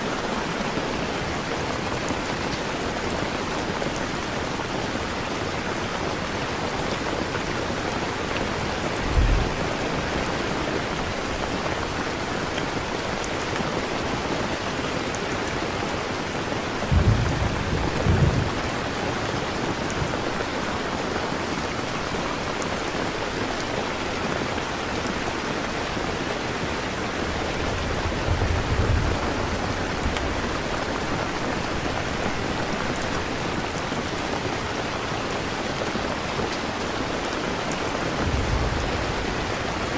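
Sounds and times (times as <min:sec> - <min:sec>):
steady rain falling: 0:00.0 - 0:39.9
thunder rumbling: 0:09.0 - 0:10.7, 0:16.9 - 0:19.4, 0:38.1 - 0:39.9.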